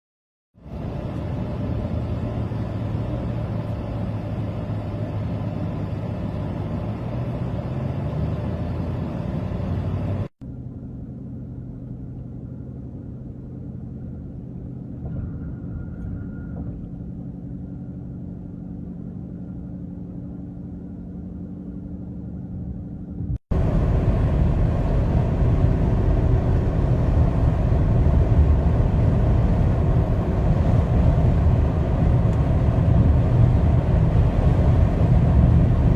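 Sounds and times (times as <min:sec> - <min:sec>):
highway traffic rumble: 0:00.6 - 0:35.9.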